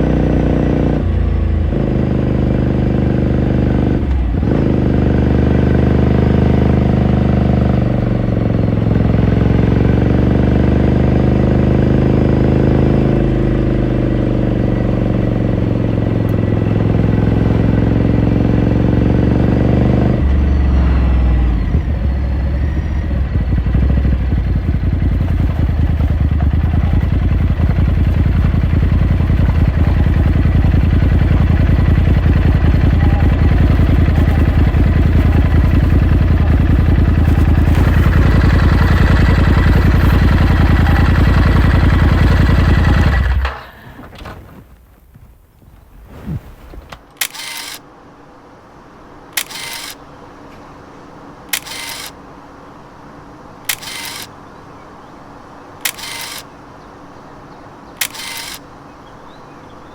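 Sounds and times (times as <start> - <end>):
motorcycle engine running: 0.0 - 45.3.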